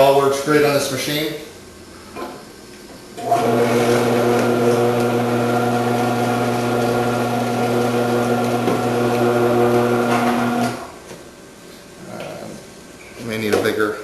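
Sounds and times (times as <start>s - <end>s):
food processor shredding: 3.2s - 10.9s.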